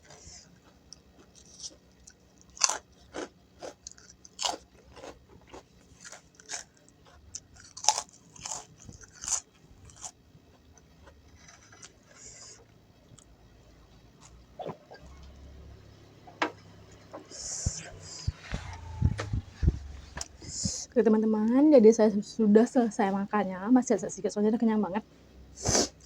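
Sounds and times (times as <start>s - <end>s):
crisp crunching while eating: 0.0s - 12.6s
soft chewing: 0.0s - 20.9s.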